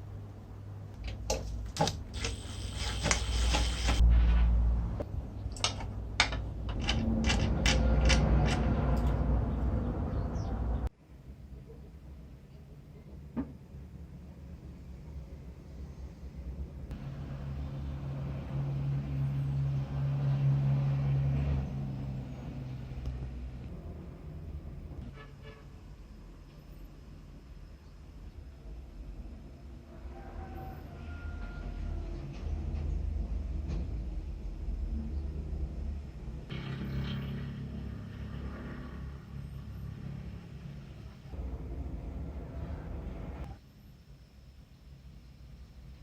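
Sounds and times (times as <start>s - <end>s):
metal scraping slide: 2.2s - 4.6s.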